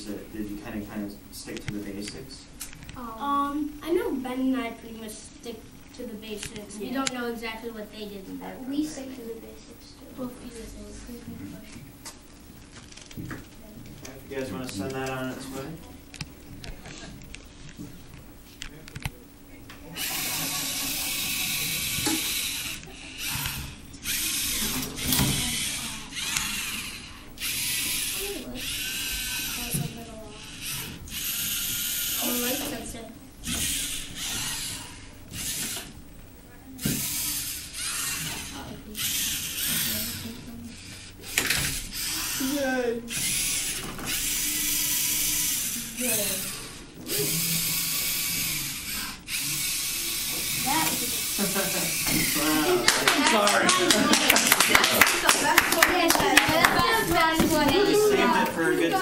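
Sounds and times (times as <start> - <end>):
robot motors and gears whirring: 20.0 - 32.8, 33.4 - 35.9, 36.8 - 52.4.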